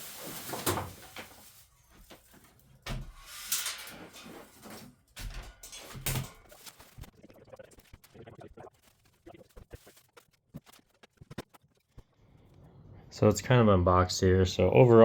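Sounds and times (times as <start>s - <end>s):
rustling: 0.0s - 7.0s.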